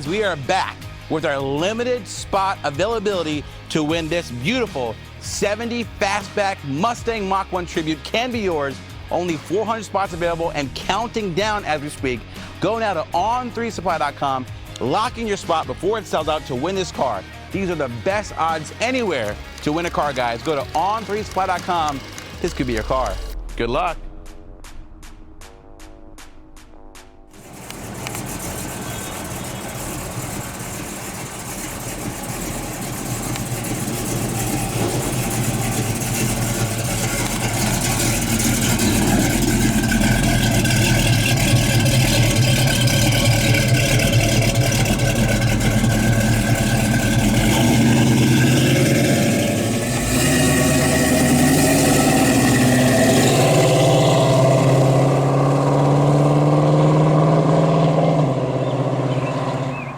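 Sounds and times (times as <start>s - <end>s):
car engine revving: 17.5s - 24.9s, 27.3s - 59.9s.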